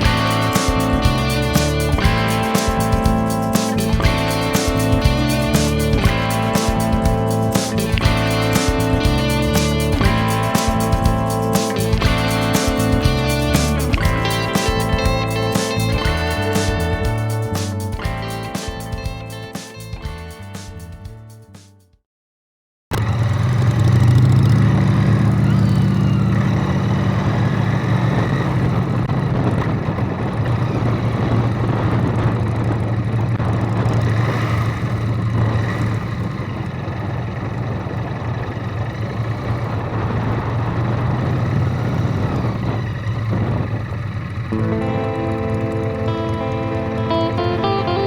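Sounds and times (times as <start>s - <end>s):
road and wind noise: 0.0s - 21.5s, 22.9s - 48.0s
vehicle engine humming: 0.0s - 21.6s, 22.9s - 48.0s
music: 0.0s - 22.0s, 44.5s - 48.0s.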